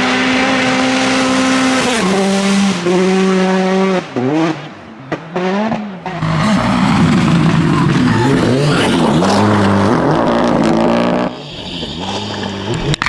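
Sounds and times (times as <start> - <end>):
rally car engine revving: 0.0 - 13.0
tyre squeal: 7.7 - 9.6.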